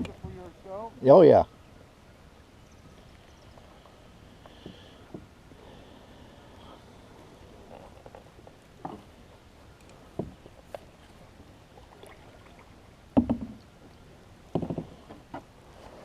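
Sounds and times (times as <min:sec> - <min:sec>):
knocks on boat hull: 0:13.2 - 0:13.6.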